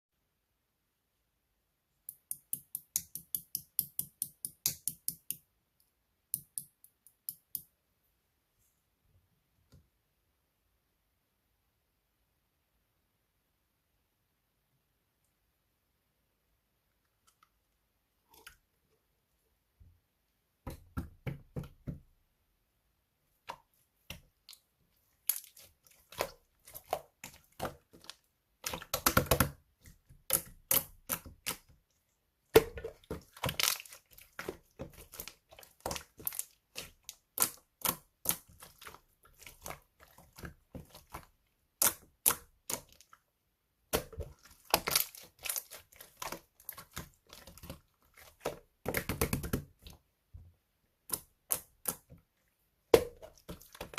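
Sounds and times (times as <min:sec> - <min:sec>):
slime squeezed with sticky crackles: 0:33.0 - 0:41.2, 0:44.0 - 0:48.4.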